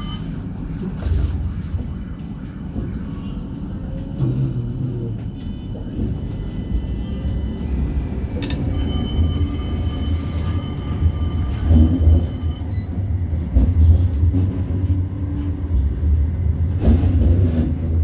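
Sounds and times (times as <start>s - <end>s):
tram running on rails rumble: 0.0s - 18.0s
high-pitched tones: 6.5s - 12.9s.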